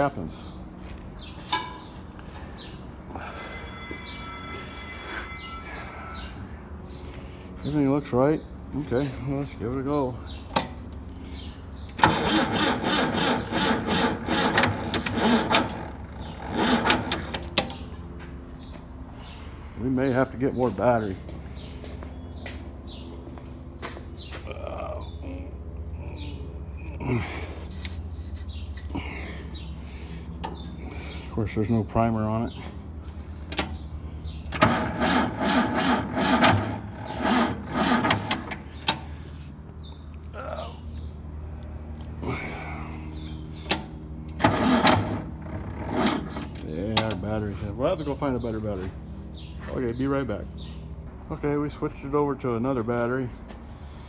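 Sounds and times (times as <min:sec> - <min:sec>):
engine starter cranking: 0:11.8 - 0:17.9, 0:33.5 - 0:39.2, 0:43.6 - 0:47.6.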